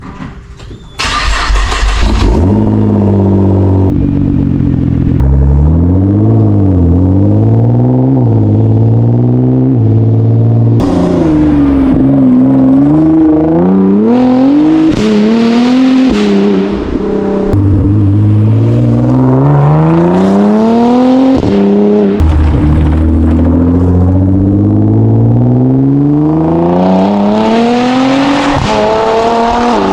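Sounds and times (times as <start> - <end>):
car engine idling: 1.0 - 7.1.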